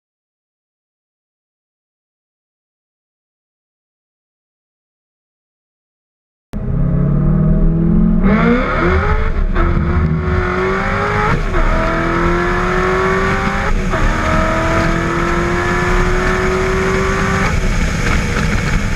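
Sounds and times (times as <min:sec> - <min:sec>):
engine accelerating hard: 0:06.6 - 0:18.9.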